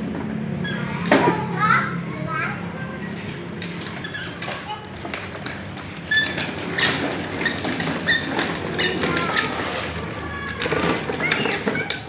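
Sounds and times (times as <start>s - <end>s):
short squeaks: 0.6s - 1.1s, 3.7s - 4.8s, 6.0s - 10.5s, 11.1s - 12.0s.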